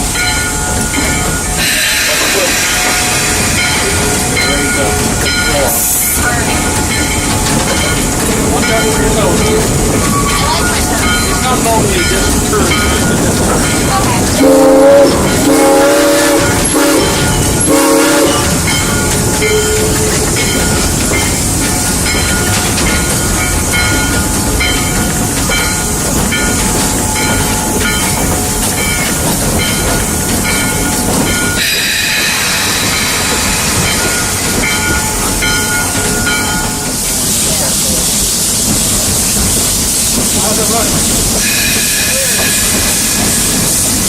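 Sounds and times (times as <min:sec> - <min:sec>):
locomotive clatter and rumble: 0:00.0 - 0:44.0
steam locomotive whistle: 0:01.6 - 0:04.2, 0:14.4 - 0:18.7, 0:31.6 - 0:33.7, 0:41.4 - 0:43.5.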